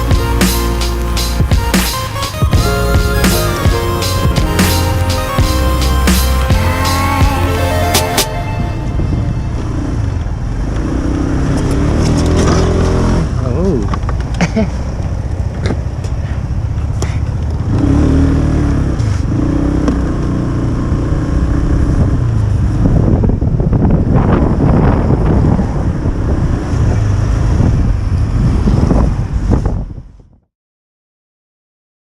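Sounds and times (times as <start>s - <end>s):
heavy low rumbling noise: 0.0s - 11.4s.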